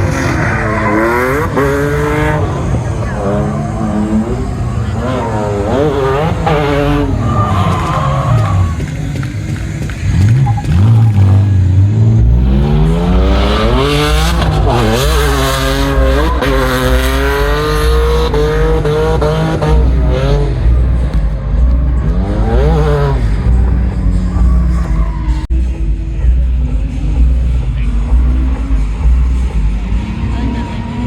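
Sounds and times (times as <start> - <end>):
car engine revving: 0.0 - 31.0
low thudding bass: 10.0 - 31.0.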